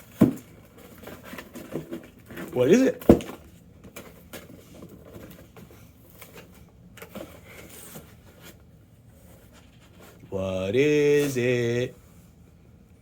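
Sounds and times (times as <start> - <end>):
cardboard box rustling: 0.0 - 10.3.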